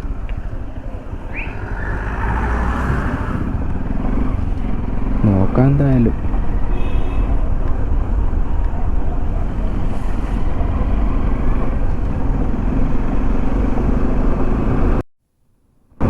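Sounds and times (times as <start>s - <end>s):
motorcycle engine and road rumble: 0.0s - 15.0s
wind rushing over microphone: 0.0s - 15.0s.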